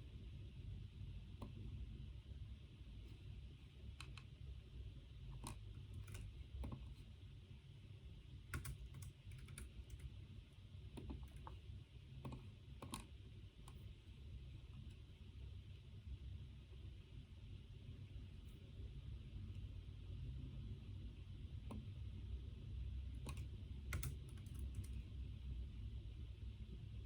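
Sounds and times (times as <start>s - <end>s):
low room hum: 0.0s - 27.0s
typing on computer keyboard: 5.4s - 6.9s, 8.5s - 10.1s, 11.0s - 11.6s, 23.2s - 25.0s.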